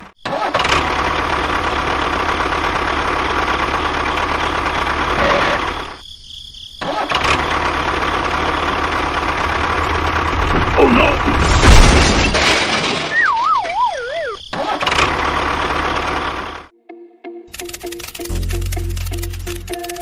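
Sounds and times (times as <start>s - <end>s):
small engine chugging: 0.3s - 6.0s, 7.1s - 11.1s, 13.2s - 16.7s, 17.5s - 20.0s.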